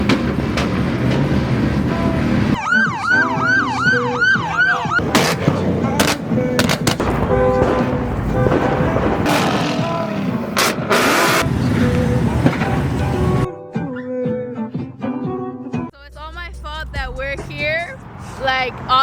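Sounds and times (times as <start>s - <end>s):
police siren yelping: 2.5s - 5.1s.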